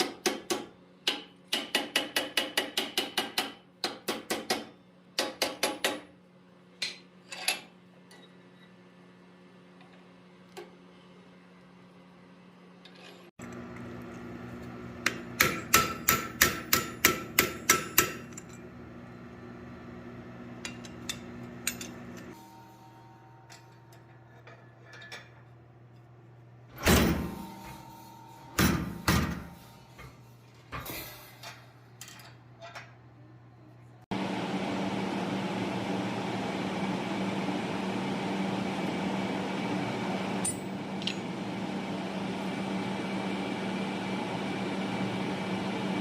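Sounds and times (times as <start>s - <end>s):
hammer striking hot steel on anvil: 0.0s - 6.1s, 15.0s - 18.6s, 40.4s - 41.2s
steady mechanical hum: 0.0s - 46.0s.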